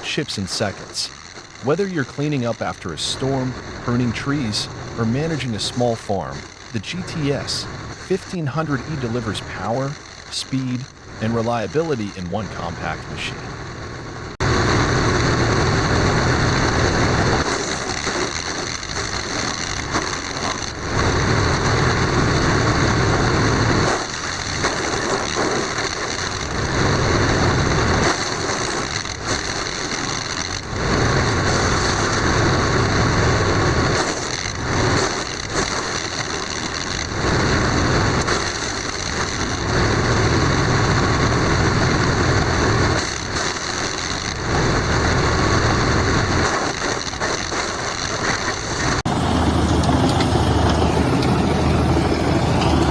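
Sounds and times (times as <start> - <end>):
wood chipper running: 47.8 - 52.9
wood chipper chipping material: 49.1 - 52.9.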